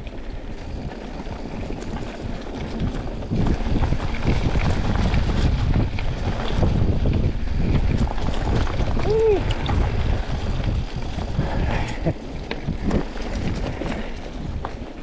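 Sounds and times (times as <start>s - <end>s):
bike rattling over bumps: 0.0s - 15.0s
bike tyres rumbling on dirt: 0.0s - 15.0s
wind buffeting microphone: 0.0s - 15.0s.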